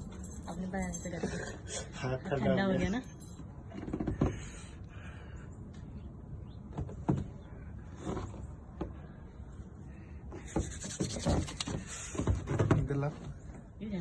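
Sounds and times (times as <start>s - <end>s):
knocks and scrapes: 6.7s - 9.2s, 10.3s - 13.4s.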